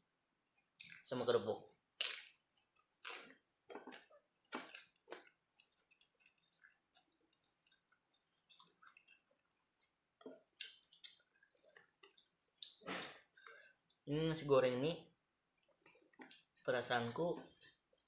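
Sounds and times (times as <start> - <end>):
wet chewing and lip-smacking: 0.5 - 1.1, 1.7 - 14.0, 15.4 - 16.7.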